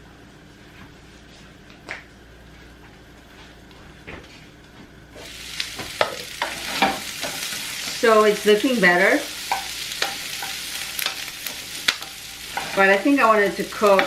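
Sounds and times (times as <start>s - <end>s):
food sizzling in a pan: 5.2s - 14.0s.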